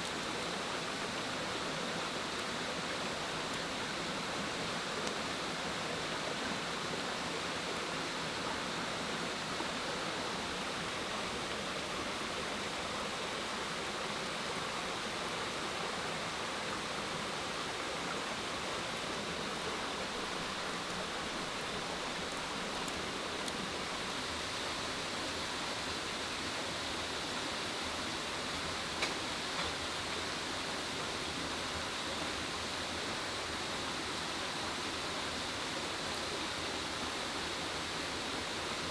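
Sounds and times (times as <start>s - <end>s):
water rushing: 0.0s - 26.6s
light tick: 5.0s - 5.2s.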